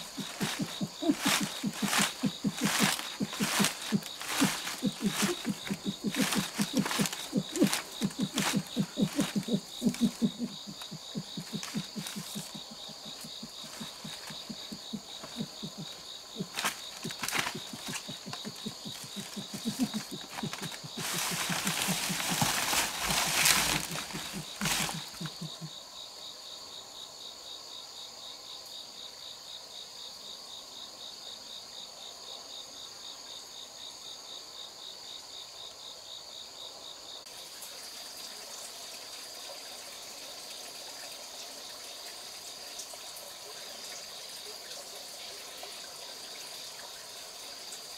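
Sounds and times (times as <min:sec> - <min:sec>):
loud rustling: 0:00.0 - 0:25.6
insects trilling: 0:00.0 - 0:47.9.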